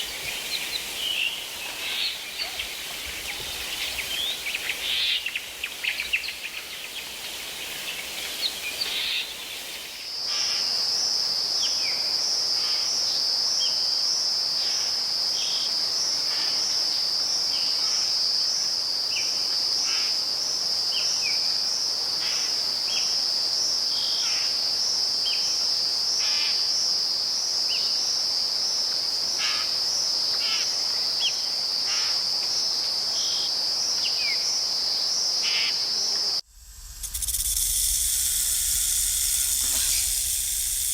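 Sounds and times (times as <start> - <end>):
bird-like chirps: 0.0 - 9.9
insect high trill: 34.2 - 40.9.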